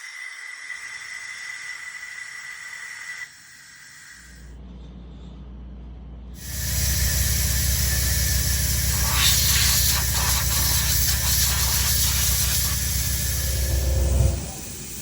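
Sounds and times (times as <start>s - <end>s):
engine exhaust pulsing: 6.4s - 15.0s.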